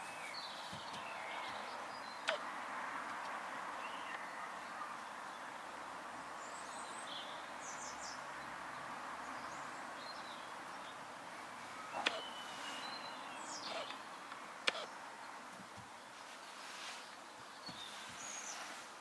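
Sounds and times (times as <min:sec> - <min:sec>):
steady hiss: 0:10.6 - 0:19.0.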